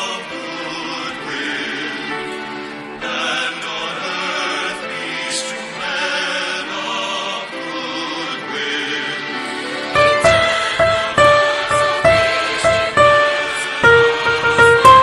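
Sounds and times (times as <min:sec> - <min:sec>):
choir singing held notes: 0:00.0 - 0:15.0
instrumental accompaniment: 0:09.5 - 0:15.0.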